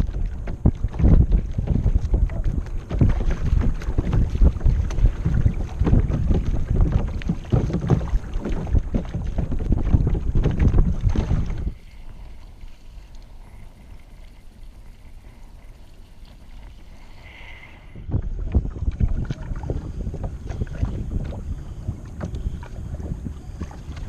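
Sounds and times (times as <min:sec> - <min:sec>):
wind buffeting microphone: 0:00.0 - 0:12.4, 0:17.4 - 0:24.0
faint steady hiss: 0:11.7 - 0:18.1.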